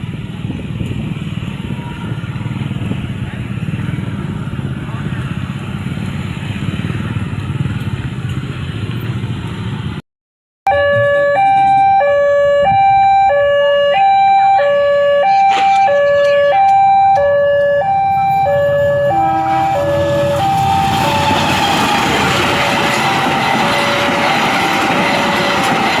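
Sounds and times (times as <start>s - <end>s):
level crossing alarm two tones: 10.7s - 26.0s
train rumble: 14.6s - 26.0s.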